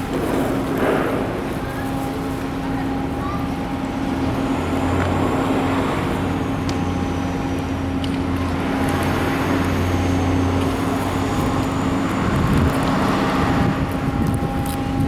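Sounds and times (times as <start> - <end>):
low engine drone: 2.3 - 15.0.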